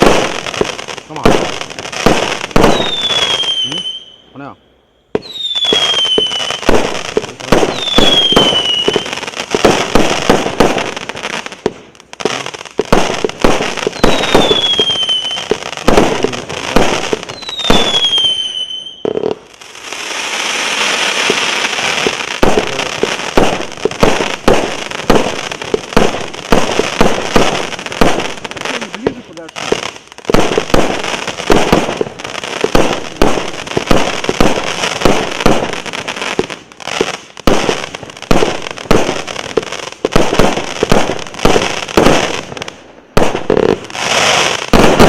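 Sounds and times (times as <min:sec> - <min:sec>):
firework launch thumps and bursts: 0:00.0 - 0:03.8, 0:05.1 - 0:18.2, 0:19.0 - 0:45.0
falling firework whistles: 0:02.0 - 0:04.3, 0:05.0 - 0:06.9, 0:07.5 - 0:10.0, 0:13.4 - 0:25.3.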